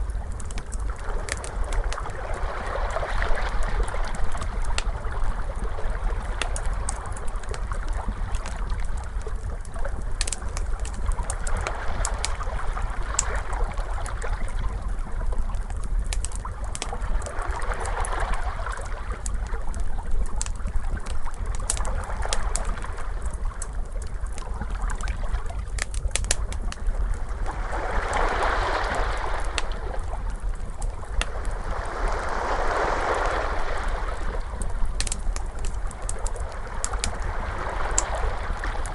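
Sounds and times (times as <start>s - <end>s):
steady low rumble: 0.0s - 38.9s
wood fire crackling: 0.0s - 38.9s
ocean waves washing in: 27.2s - 38.9s.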